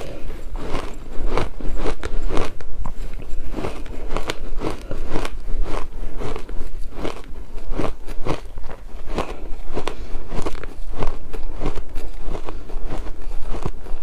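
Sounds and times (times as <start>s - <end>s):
shaved ice crunching in mouth: 0.0s - 14.0s.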